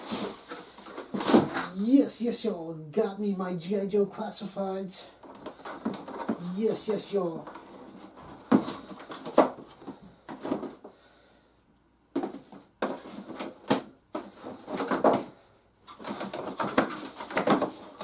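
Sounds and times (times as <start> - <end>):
plastic and cardboard packaging handled: 0.0 - 1.8, 5.2 - 10.9, 12.2 - 18.0.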